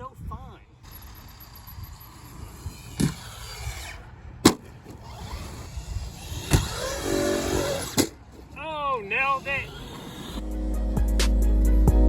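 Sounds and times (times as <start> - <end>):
electric motor whining: 0.8 - 8.1, 9.0 - 10.6
toy truck hitting ground: 1.0 - 8.5.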